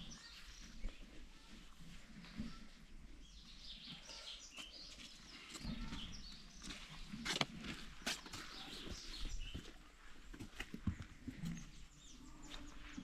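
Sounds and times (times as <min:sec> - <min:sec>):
birds chirping: 0:00.0 - 0:01.2, 0:02.2 - 0:13.0.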